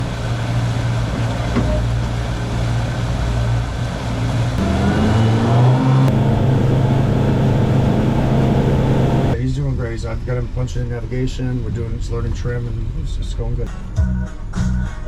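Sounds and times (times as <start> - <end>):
boat engine revving up: 2.0 - 9.4.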